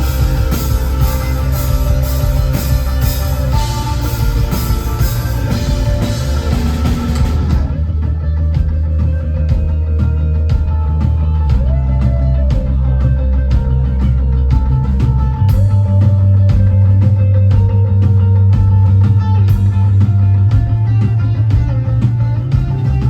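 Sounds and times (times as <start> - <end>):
drum kit beat: 0.0 - 23.0
guitars: 0.0 - 23.0
heavy bass line: 0.0 - 23.0.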